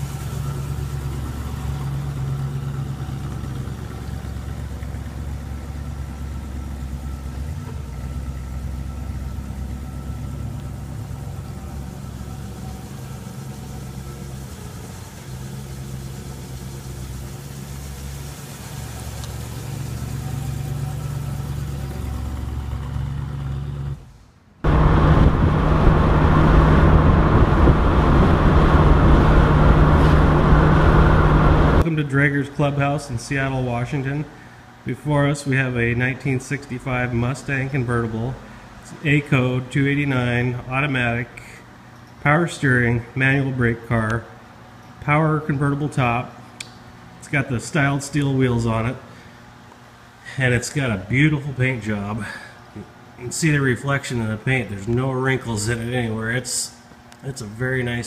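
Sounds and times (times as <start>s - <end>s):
car engine hum: 0.0s - 31.9s
wind and road noise: 17.9s - 31.8s.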